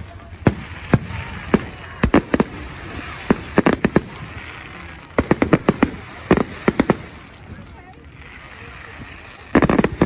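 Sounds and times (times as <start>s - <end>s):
fireworks exploding: 0.0s - 10.0s.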